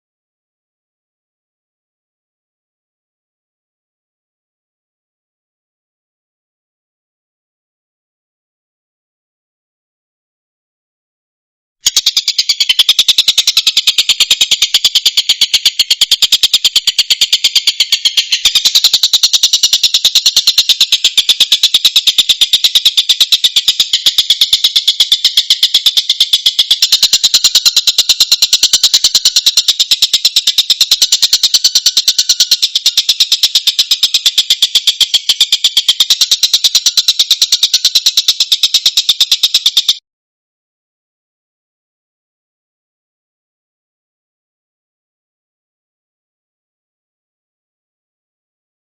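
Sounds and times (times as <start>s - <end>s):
kingfisher chattering trill: 11.9s - 40.0s.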